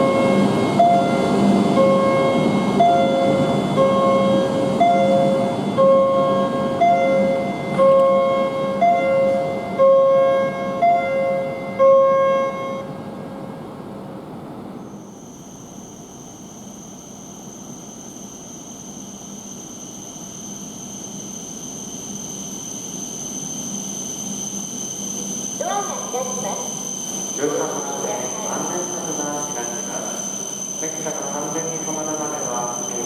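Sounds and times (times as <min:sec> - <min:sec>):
low station rumble: 0:00.0 - 0:33.0
high-pitched whine: 0:15.0 - 0:33.0.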